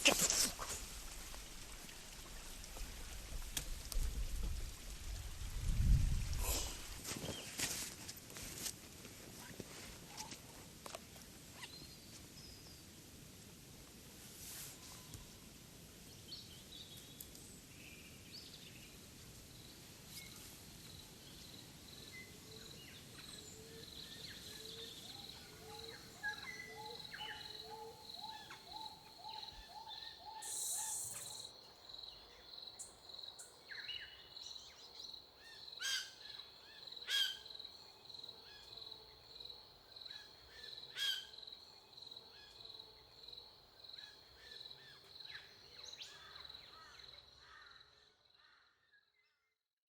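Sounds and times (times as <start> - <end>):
birds calling: 24.4 - 31.5.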